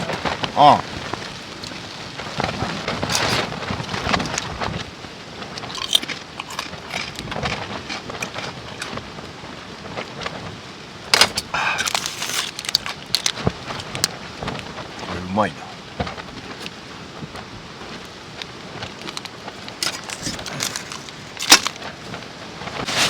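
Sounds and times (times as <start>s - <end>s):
rain pattering: 0.0s - 23.0s
crunching snacks: 5.6s - 9.0s, 11.2s - 14.1s, 18.9s - 22.0s
snack packet crinkling: 5.6s - 9.0s, 11.6s - 14.1s, 18.9s - 22.0s.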